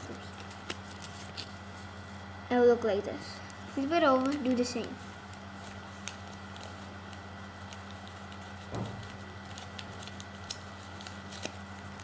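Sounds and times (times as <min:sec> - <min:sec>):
paper crinkling and creasing: 0:00.0 - 0:02.1, 0:03.5 - 0:12.0
low electrical hum: 0:00.0 - 0:12.0.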